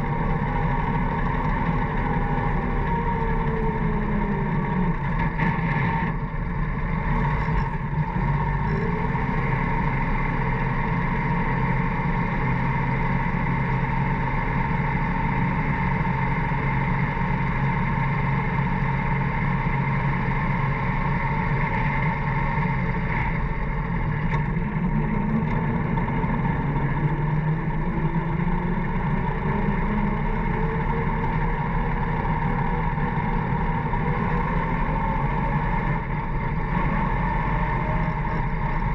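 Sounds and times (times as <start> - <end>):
motor grader engine running: 0.0 - 38.9.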